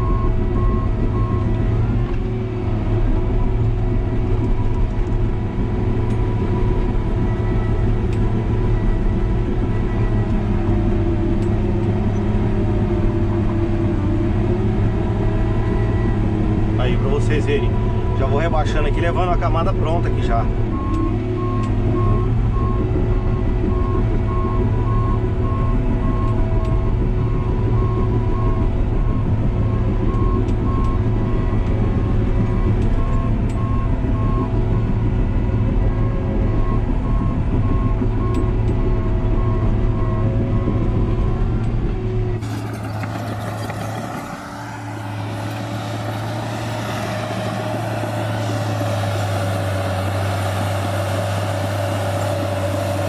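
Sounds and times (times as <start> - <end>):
bulldozer diesel engine running: 0.0 - 53.0
reversing alarm beeps: 19.8 - 34.5.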